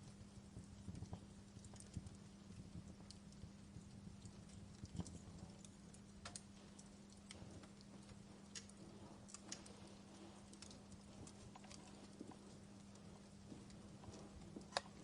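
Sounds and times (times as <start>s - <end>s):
fire pops and snaps: 0.0s - 15.0s
steady low hum: 0.0s - 15.0s
wood fire crackling: 0.0s - 15.0s.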